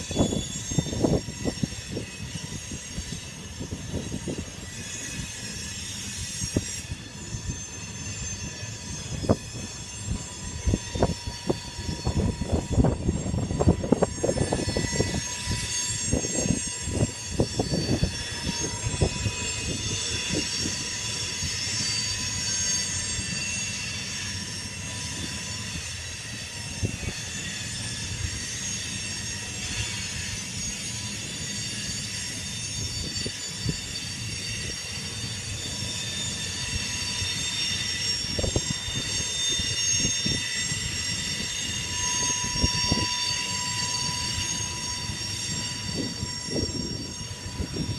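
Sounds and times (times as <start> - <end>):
train wheel squeal: 0.0 - 47.9.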